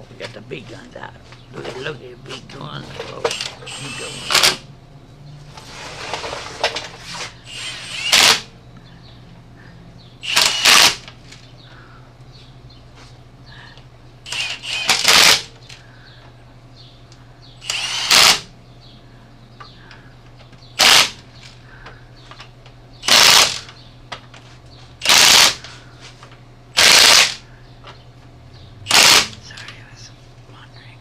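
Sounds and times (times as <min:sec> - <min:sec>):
impact wrench hammering: 0:26.8 - 0:27.4.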